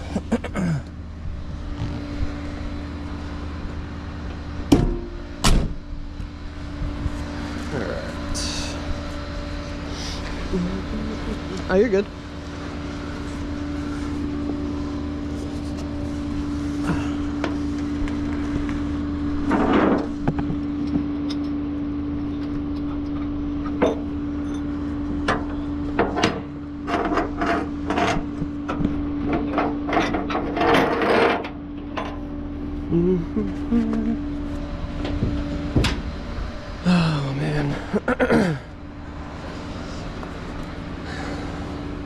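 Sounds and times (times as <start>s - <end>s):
tow truck idling hum: 0.0s - 30.4s, 31.6s - 42.0s
metal clanks and rattles: 22.8s - 32.2s.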